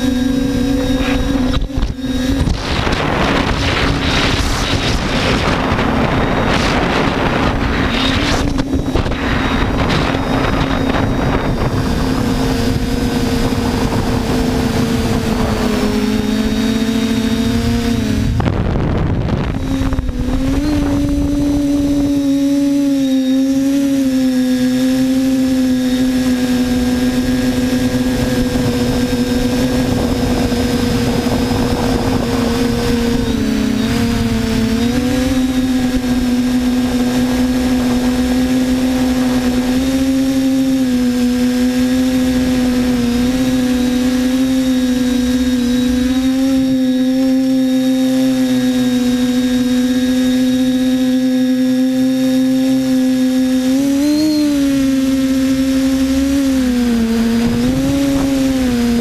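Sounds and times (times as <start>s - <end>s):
drone motors whining: 0.0s - 59.0s.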